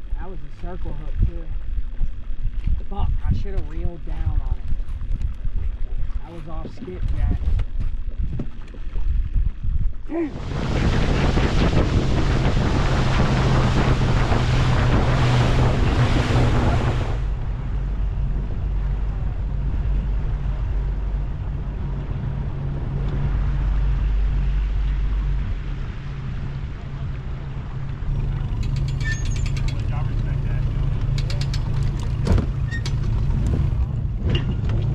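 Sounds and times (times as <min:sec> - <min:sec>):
wind buffeting microphone: 0:00.0 - 0:34.9
water rushing past: 0:10.1 - 0:19.2, 0:27.5 - 0:34.4
boat motor hum: 0:10.1 - 0:34.9.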